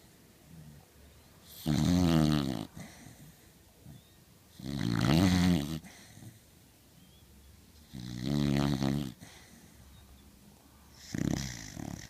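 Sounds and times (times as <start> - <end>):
dog snoring: 1.4 - 6.4, 7.8 - 9.8, 10.9 - 12.0
faint breathing: 2.7 - 4.2, 5.8 - 6.6, 9.1 - 12.0.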